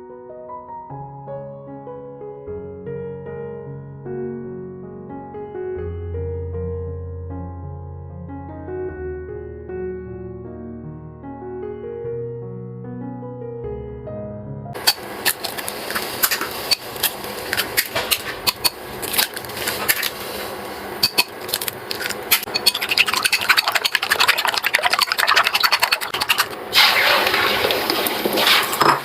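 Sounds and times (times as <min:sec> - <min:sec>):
water running and splashing: 0:22.0 - 0:28.9.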